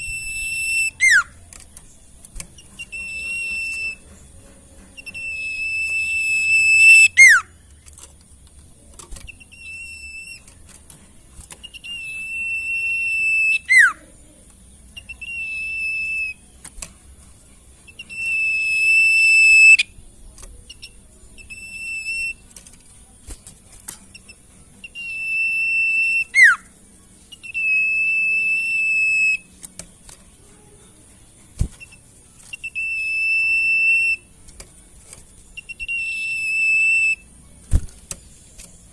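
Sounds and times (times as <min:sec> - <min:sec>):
bird whistling long pure notes: 0:00.0 - 0:01.4, 0:02.8 - 0:04.1, 0:05.0 - 0:07.5, 0:09.3 - 0:10.5, 0:11.6 - 0:14.0, 0:15.0 - 0:16.5, 0:17.8 - 0:19.9, 0:20.7 - 0:22.4, 0:24.8 - 0:26.7, 0:27.3 - 0:29.6, 0:31.8 - 0:34.3, 0:35.6 - 0:37.3.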